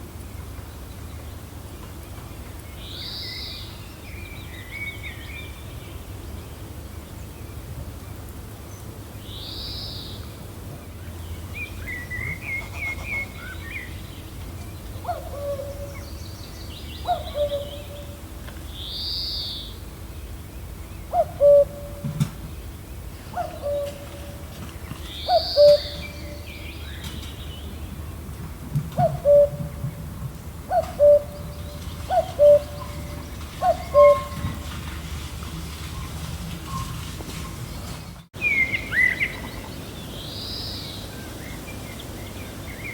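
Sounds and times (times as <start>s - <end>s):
gentle wind rumbling: 0.0s - 42.9s
birds chirping: 9.5s - 42.9s
bird twittering: 25.1s - 27.1s.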